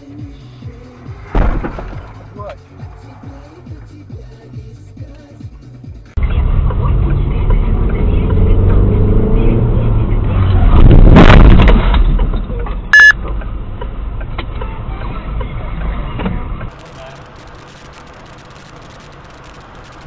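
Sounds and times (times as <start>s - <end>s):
car engine and road noise: 0.0s - 20.0s
short high beep: 12.9s - 13.2s.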